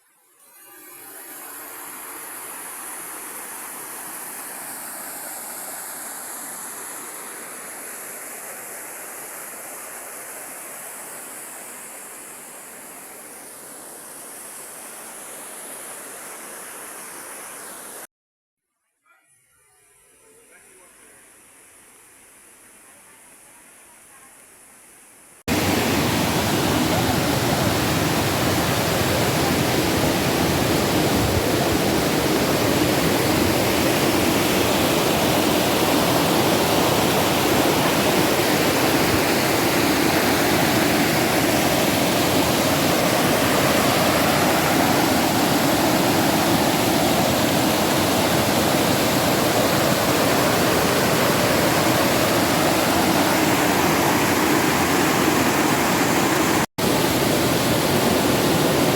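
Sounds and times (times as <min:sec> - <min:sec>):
rushing river water: 0:25.5 - 0:58.9.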